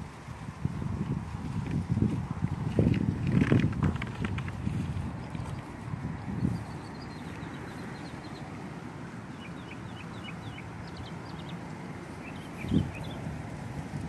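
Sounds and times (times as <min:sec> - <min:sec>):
small birds chirping: 0:03.9 - 0:13.4.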